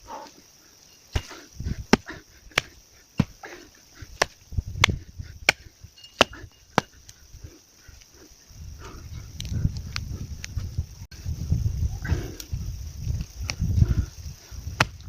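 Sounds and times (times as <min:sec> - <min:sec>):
bladed tool striking roots: 0:01.1 - 0:03.4, 0:04.2 - 0:07.0
dull thuds: 0:01.1 - 0:03.4.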